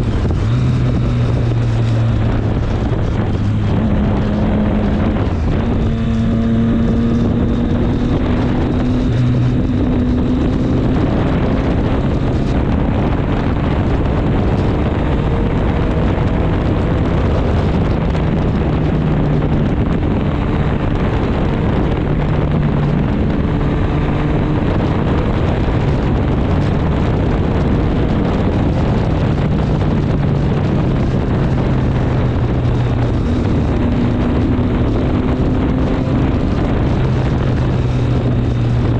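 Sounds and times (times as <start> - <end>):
motorcycle engine running: 0.0 - 38.9
wind rush over microphone: 0.0 - 38.9.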